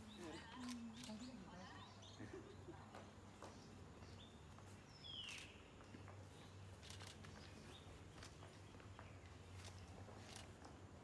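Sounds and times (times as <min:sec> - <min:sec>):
faint bird chirps: 0:04.9 - 0:09.6.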